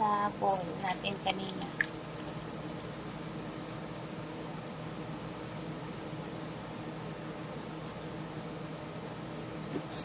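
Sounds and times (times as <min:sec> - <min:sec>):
low mechanical hum with hiss: 0:00.0 - 0:10.0.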